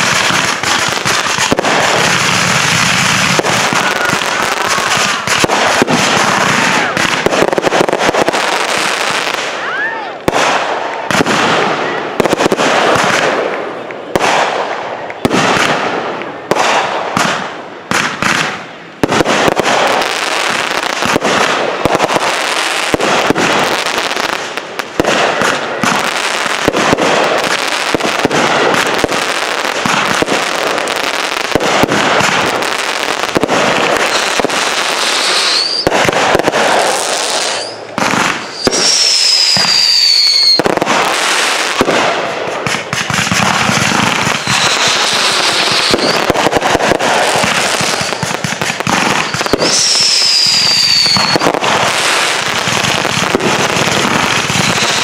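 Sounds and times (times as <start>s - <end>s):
firework whistle: 0.0s - 13.3s, 33.9s - 55.0s
fireworks bangs and crackling: 0.0s - 55.0s.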